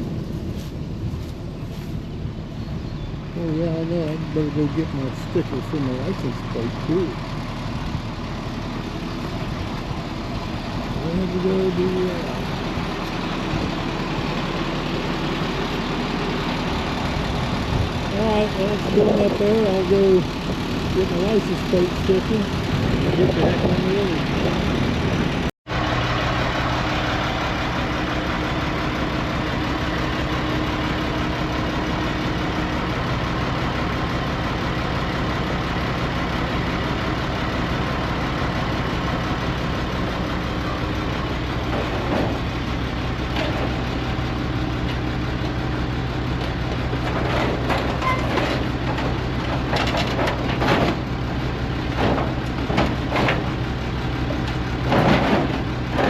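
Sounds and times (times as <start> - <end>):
truck engine running: 0.0 - 56.0
rattles and knocks: 41.5 - 44.2, 46.3 - 56.0.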